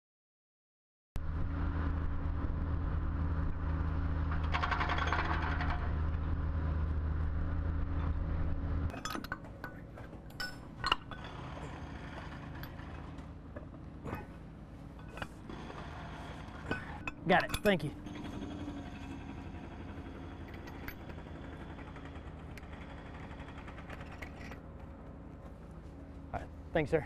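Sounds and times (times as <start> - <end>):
machine engine humming: 1.2 - 27.0
metal clinks and knocks: 4.3 - 6.2, 8.9 - 25.8.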